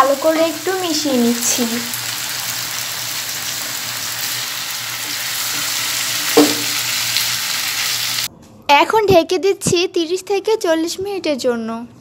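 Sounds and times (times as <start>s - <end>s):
tripe sizzling in a frying pan: 0.0s - 8.3s
brief loud knock: 6.3s - 6.8s.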